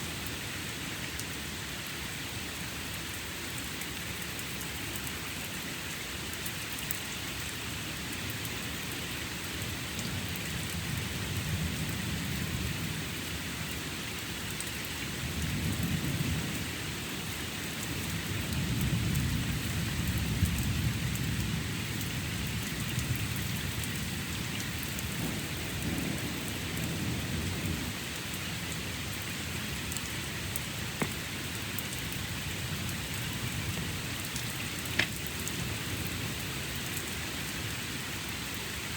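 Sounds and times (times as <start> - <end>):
rain hissing and pattering: 0.0 - 38.9
thunder rumbling: 24.2 - 28.0.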